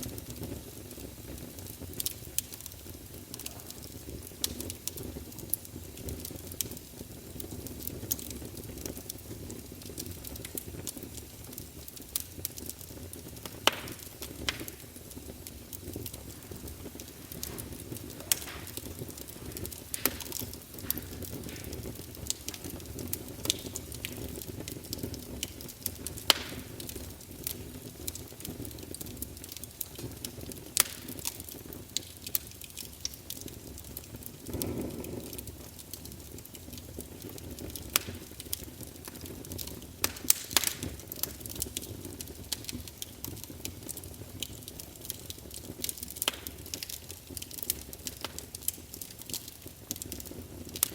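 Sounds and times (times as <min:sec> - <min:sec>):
fire crackling and popping: 0:00.0 - 0:50.9
wood fire burning: 0:00.0 - 0:50.9.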